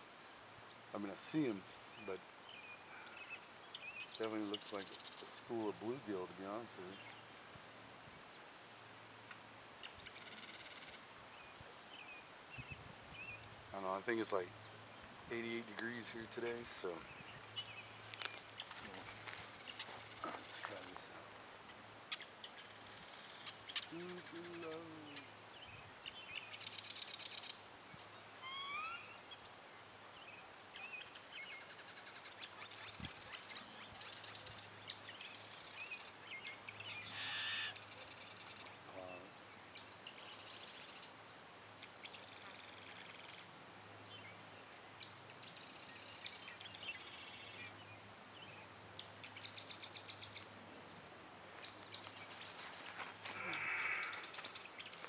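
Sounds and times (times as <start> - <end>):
small birds singing: 0.0 - 55.0
rising whistled bird notes: 28.4 - 29.2.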